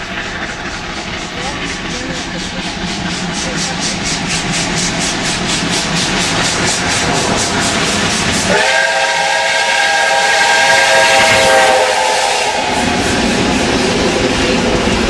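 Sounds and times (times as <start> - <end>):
steam hissing: 0.0 - 15.0
steam locomotive exhaust chuffs: 0.0 - 15.0
steam whistle blast: 8.5 - 13.0.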